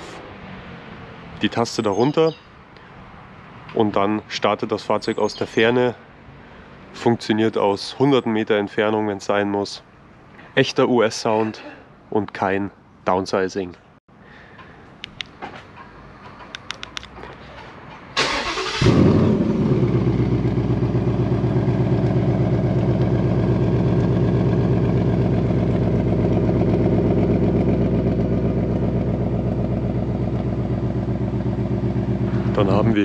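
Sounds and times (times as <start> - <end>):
car starter cranking: 18.2 - 19.3
car engine starting and idling: 18.2 - 33.0.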